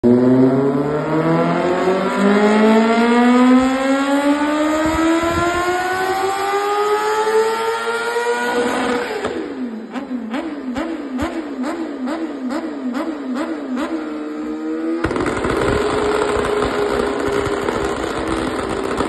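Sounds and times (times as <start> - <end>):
motorcycle engine revving: 0.0 - 19.0
exhaust pops and crackles: 15.0 - 19.0.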